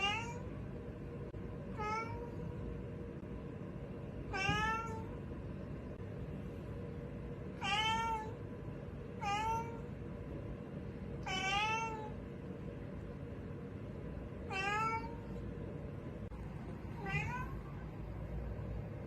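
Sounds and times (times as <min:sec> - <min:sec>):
cat meowing: 0:00.0 - 0:00.5, 0:01.7 - 0:02.4, 0:04.3 - 0:05.1, 0:07.6 - 0:08.4, 0:09.2 - 0:09.9, 0:11.2 - 0:12.2, 0:14.5 - 0:15.3, 0:17.0 - 0:17.7
faint steady hum: 0:00.0 - 0:19.0.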